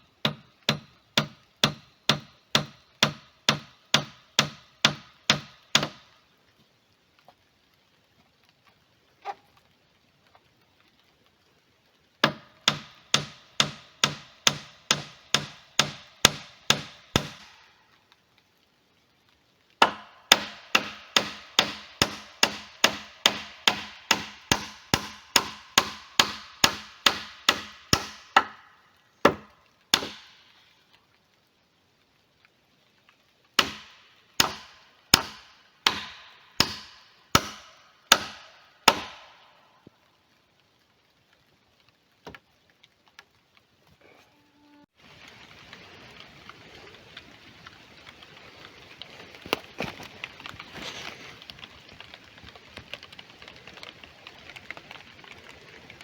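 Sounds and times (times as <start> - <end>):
hammer striking wood: 0.2 - 6.0, 12.2 - 17.5, 19.8 - 28.6, 29.2 - 30.3, 33.6 - 39.2.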